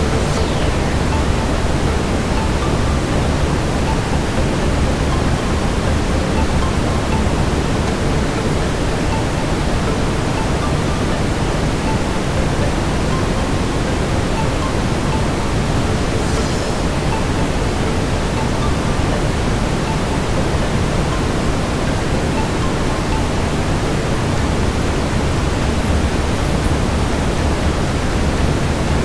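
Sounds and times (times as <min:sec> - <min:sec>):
brown noise hiss: 0:00.0 - 0:29.0.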